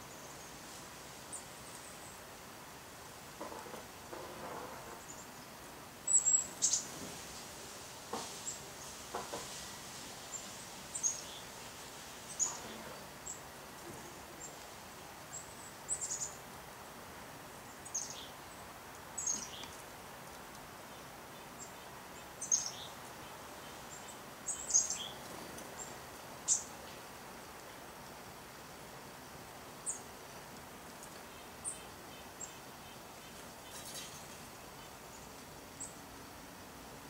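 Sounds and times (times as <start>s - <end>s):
faint steady hiss: 0.0s - 37.0s
birds chirping: 6.1s - 7.0s, 10.3s - 16.5s, 17.5s - 19.9s, 20.8s - 27.1s.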